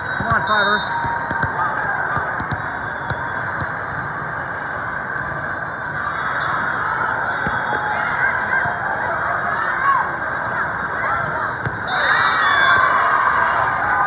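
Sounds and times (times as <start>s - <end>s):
sneakers squeaking on gym floor: 0.0s - 3.9s, 6.4s - 8.8s, 10.7s - 12.9s
crowd noise: 0.0s - 14.0s.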